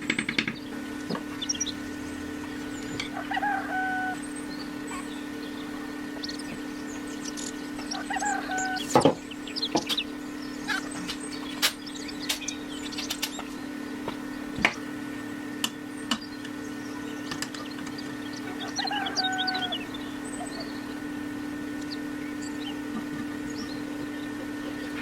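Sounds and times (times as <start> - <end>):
sharp knocks and clicks: 0.0 - 1.3
steady low hum: 0.0 - 25.0
short bird-like calls: 0.7 - 13.6, 16.8 - 25.0.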